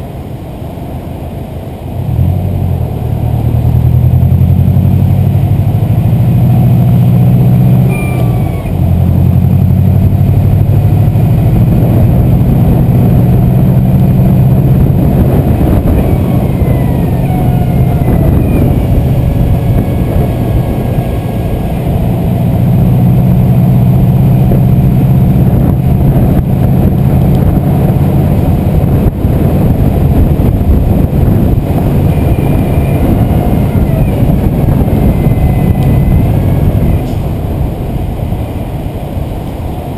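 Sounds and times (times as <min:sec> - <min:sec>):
turbocharged car engine running: 0:00.0 - 0:39.9
faint high chirps: 0:07.8 - 0:08.7.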